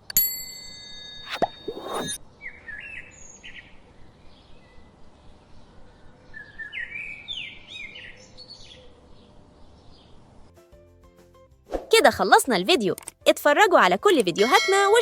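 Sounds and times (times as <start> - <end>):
brief swish: 1.3 - 2.2.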